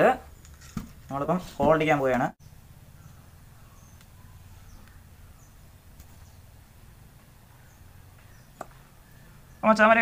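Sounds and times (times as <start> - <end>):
high bird chirps: 2.4 - 6.6, 7.3 - 9.8
steady low hum: 2.4 - 9.6.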